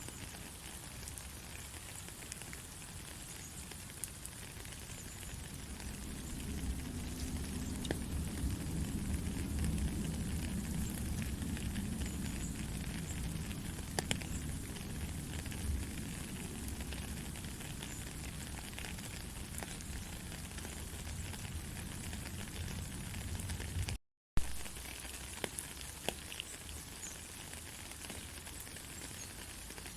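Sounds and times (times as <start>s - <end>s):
sharp raindrop taps: 0.0s - 29.9s
steady gentle rain: 0.0s - 29.9s
low rumble: 5.6s - 15.8s.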